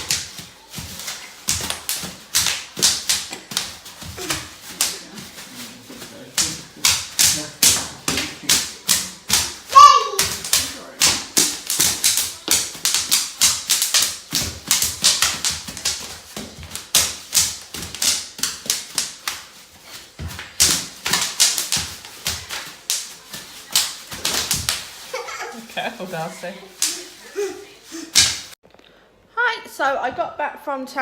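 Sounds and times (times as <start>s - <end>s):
bubble wrap popping: 0.0s - 28.6s.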